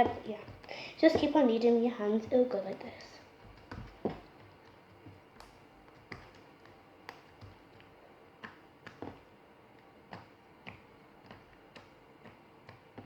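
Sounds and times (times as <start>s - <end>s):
slime clicking and popping: 3.4s - 9.3s.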